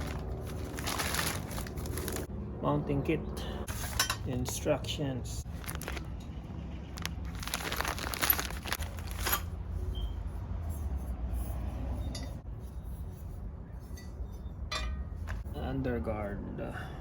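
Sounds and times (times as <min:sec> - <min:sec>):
packaging rustling: 0:00.0 - 0:02.3, 0:05.4 - 0:06.1, 0:06.9 - 0:09.5.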